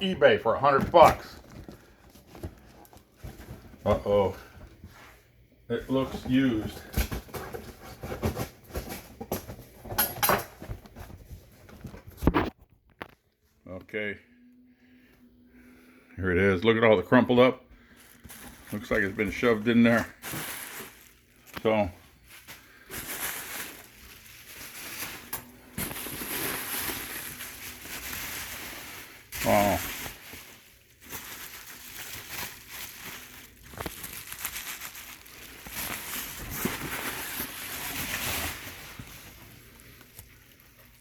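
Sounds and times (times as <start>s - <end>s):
packing material rustling: 0.3s - 4.3s, 17.8s - 41.0s.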